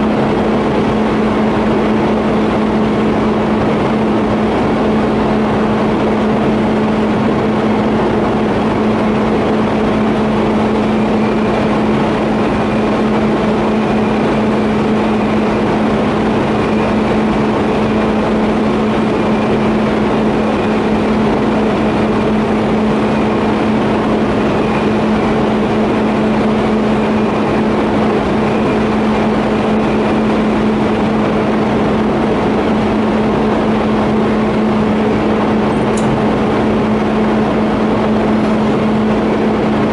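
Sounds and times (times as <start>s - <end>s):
welder humming: 32.2s - 39.8s.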